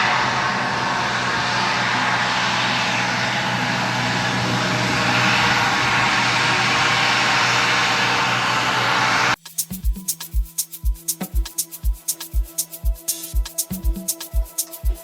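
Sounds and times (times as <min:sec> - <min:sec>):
jet airliner engines running: 0:00.0 - 0:09.4.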